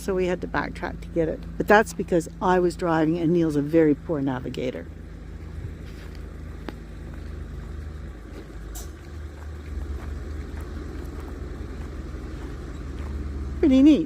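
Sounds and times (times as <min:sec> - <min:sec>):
car engine and road drone: 0:00.0 - 0:14.0.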